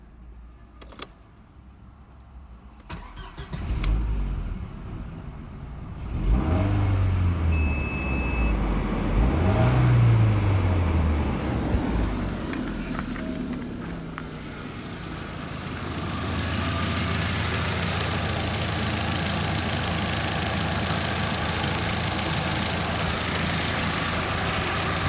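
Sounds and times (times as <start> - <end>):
car engine starting and revving: 2.9 - 25.0
starter clicks: 12.4 - 25.0.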